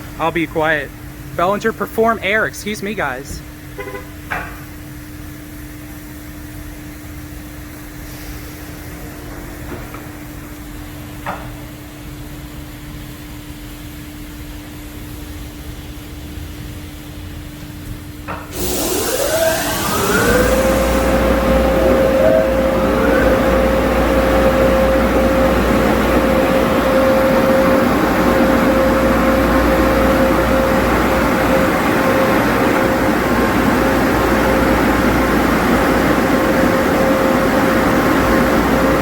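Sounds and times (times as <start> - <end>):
blower dryers rushing air: 0.0 - 3.9, 18.3 - 39.0
machinery hum: 0.0 - 39.0.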